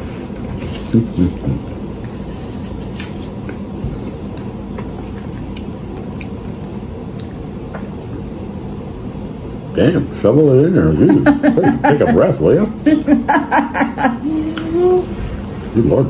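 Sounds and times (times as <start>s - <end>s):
steady background hum: 0.0s - 16.0s
soft chewing: 0.8s - 8.4s.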